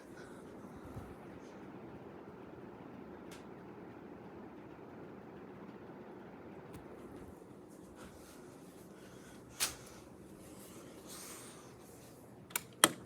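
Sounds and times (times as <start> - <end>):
ceiling fan humming: 0.0 - 13.0.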